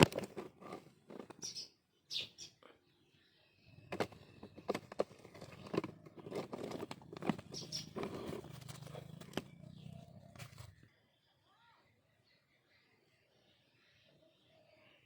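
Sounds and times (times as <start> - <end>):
rustling from handling: 0.0 - 1.6, 3.9 - 9.5
puppy growling: 3.7 - 10.8.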